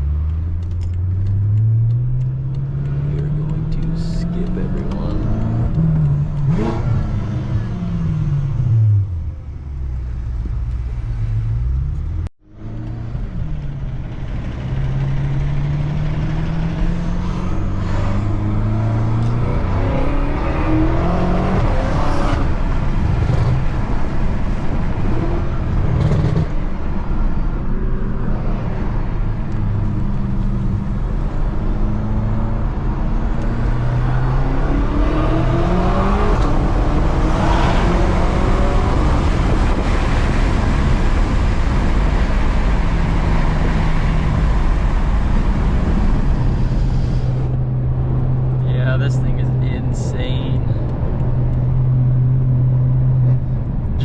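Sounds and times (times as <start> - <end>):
car engine accelerating hard: 0.0 - 54.0.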